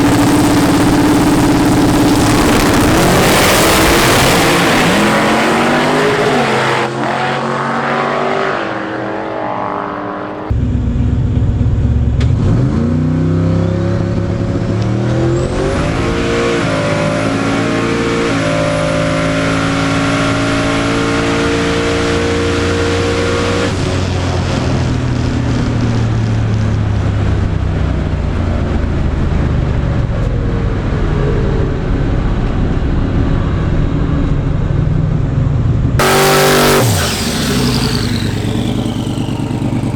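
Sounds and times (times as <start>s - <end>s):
high thin turbo whine: 0.0s - 10.8s, 36.0s - 39.9s
race car engine accelerating: 0.0s - 25.1s, 36.0s - 39.9s.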